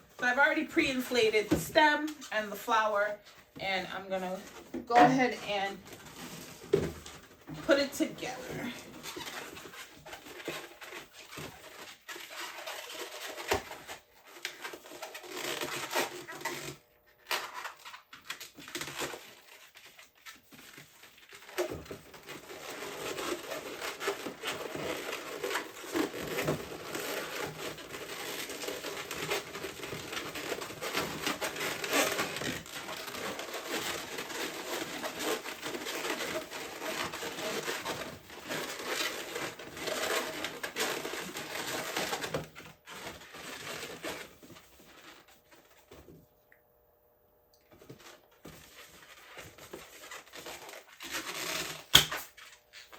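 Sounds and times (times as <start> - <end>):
balloons rubbing and squeaking: 0.0 - 45.4, 47.9 - 52.9.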